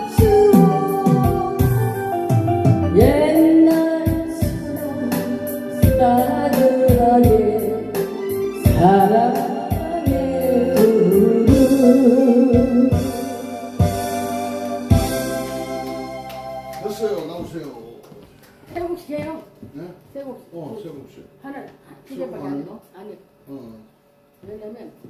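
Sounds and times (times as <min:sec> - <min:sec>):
person singing: 0:00.0 - 0:13.8
organ-like electronic keyboard: 0:00.0 - 0:17.6
steady beat: 0:00.0 - 0:17.8.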